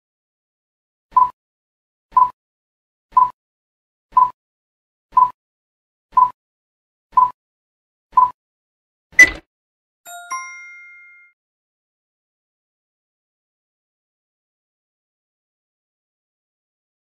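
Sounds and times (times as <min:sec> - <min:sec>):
countdown timer ticks: 0:01.1 - 0:01.4, 0:02.1 - 0:02.4, 0:03.1 - 0:03.4, 0:04.1 - 0:04.4, 0:05.1 - 0:05.4, 0:06.2 - 0:06.4, 0:07.2 - 0:07.4, 0:08.2 - 0:08.4.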